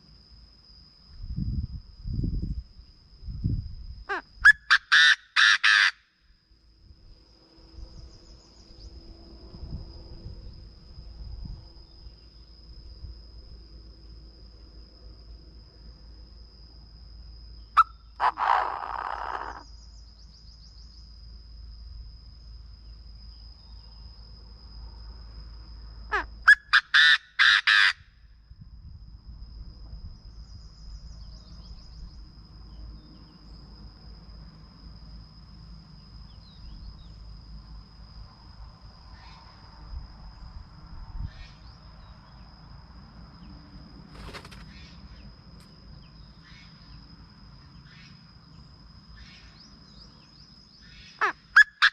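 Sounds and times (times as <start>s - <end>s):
francolin calling: 4.1s - 6.1s, 17.6s - 20.9s, 26.1s - 28.0s, 49.2s - 51.9s.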